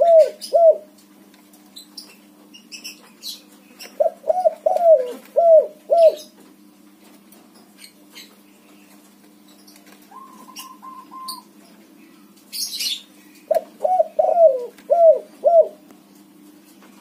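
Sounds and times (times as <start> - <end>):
dove cooing: 0.0 - 1.0, 3.2 - 6.4, 10.1 - 11.6, 13.5 - 15.9.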